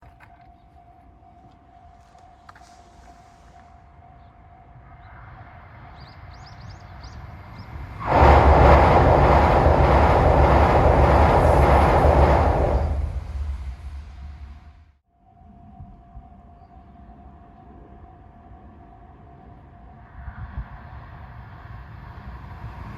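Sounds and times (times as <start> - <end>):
train passing at speed: 2.9 - 14.9, 19.5 - 22.9.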